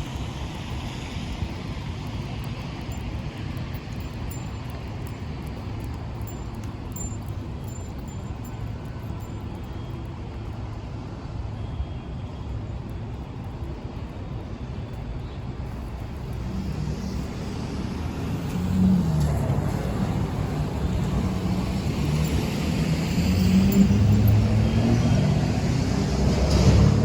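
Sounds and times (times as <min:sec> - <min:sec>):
low traffic rumble: 0:00.0 - 0:27.0
vehicle engine approaching: 0:16.0 - 0:27.0.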